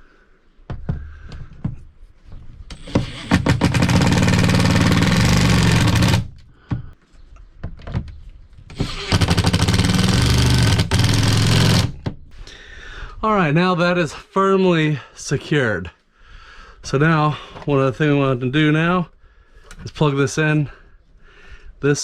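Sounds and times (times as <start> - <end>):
impact driver hammering: 2.7 - 6.3, 8.7 - 12.1.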